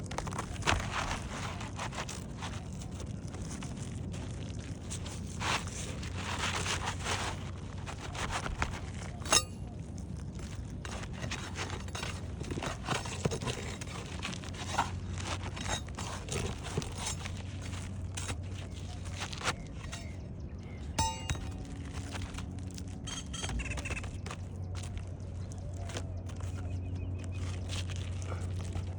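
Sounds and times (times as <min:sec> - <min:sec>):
steady low hum: 0:00.0 - 0:28.9
tools scraping roof shingles: 0:04.8 - 0:09.7, 0:10.7 - 0:20.2, 0:20.8 - 0:24.4.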